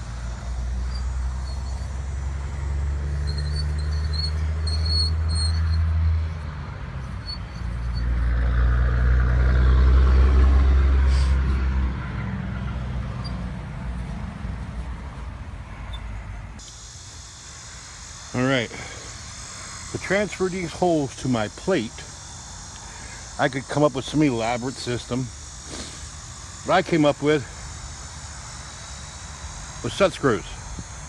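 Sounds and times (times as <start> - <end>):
vehicle engine drone passing: 0.0 - 16.6.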